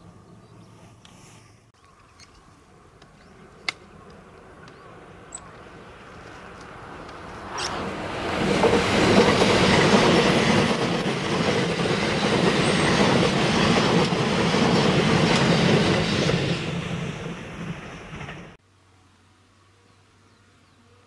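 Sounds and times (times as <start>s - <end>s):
train passing at speed: 3.4s - 18.6s.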